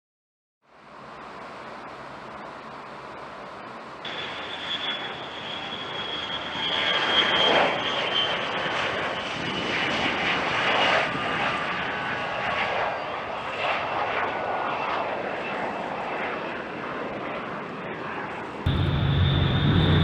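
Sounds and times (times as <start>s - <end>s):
jet engine whining: 4.1s - 10.6s, 18.7s - 20.0s.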